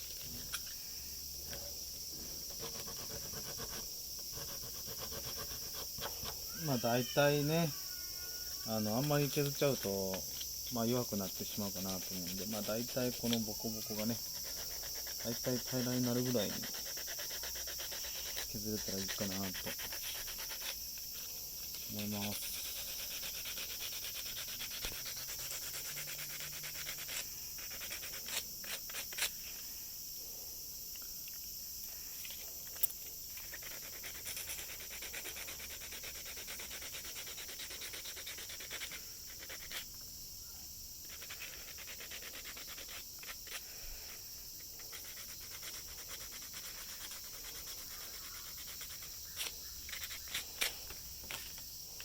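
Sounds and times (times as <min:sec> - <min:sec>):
sandpaper rubbing on plastic: 0:02.1 - 0:07.8, 0:08.6 - 0:09.9, 0:10.9 - 0:29.4, 0:33.4 - 0:39.8, 0:41.0 - 0:43.7, 0:44.8 - 0:51.6.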